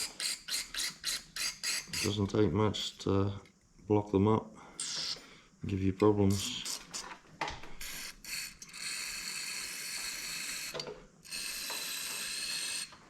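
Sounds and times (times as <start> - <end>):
aerosol spray hissing: 6.3 - 7.1.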